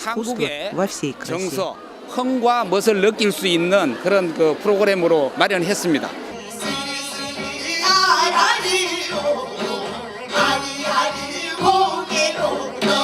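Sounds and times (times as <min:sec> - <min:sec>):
person singing with vibrato: 0:06.3 - 0:13.0.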